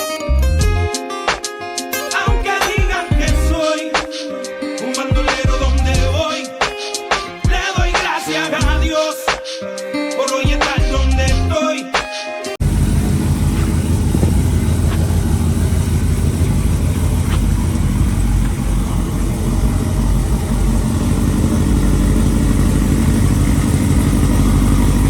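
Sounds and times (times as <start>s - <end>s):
pickup truck engine running: 12.6s - 25.0s.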